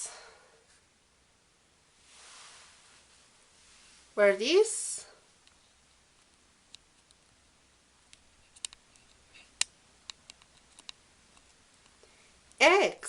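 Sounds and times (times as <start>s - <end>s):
faint small clicks and taps: 8.1s - 12.6s.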